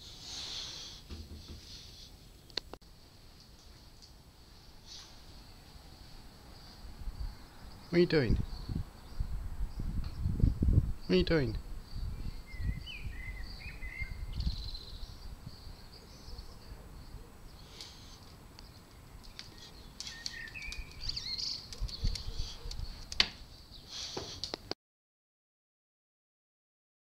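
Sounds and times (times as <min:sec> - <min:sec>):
small birds chirping: 0:06.5 - 0:24.6.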